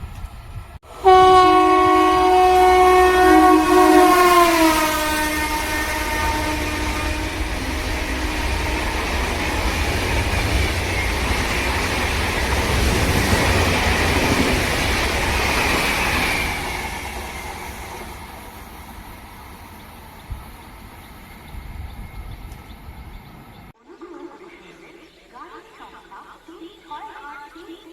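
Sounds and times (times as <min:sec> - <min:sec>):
train wheels rumbling on rails: 0:00.0 - 0:23.7
train horn: 0:01.0 - 0:10.6.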